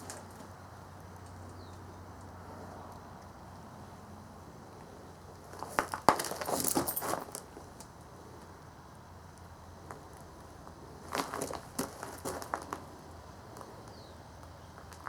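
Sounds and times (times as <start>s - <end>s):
parts rattling and packaging crinkling: 5.6s - 7.4s.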